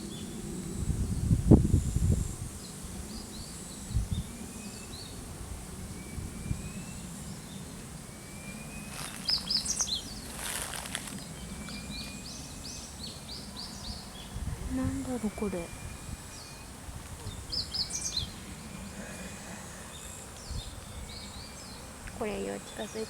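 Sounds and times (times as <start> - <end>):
small birds chirping: 6.0 - 23.0.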